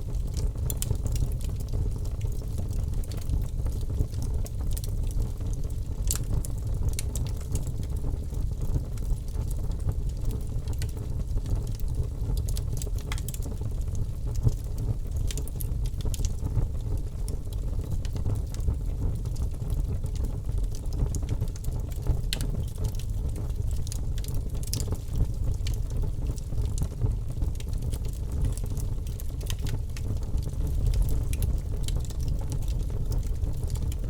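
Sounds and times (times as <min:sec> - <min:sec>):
low rumble of fire: 0:00.0 - 0:34.0
wood fire crackling and popping: 0:00.0 - 0:34.0.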